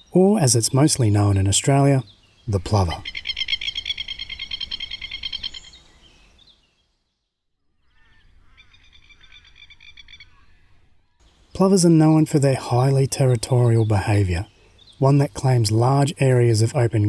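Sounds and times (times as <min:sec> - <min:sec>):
bird rattling alarm call: 0:03.0 - 0:05.8.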